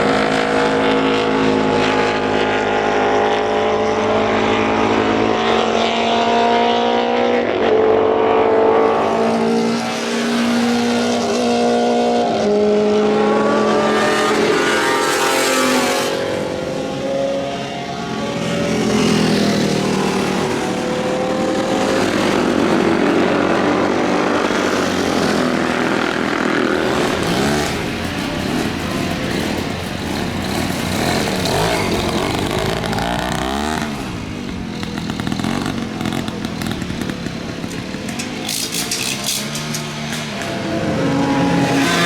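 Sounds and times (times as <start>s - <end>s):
motorcycles passing at speed: 0.0s - 42.0s.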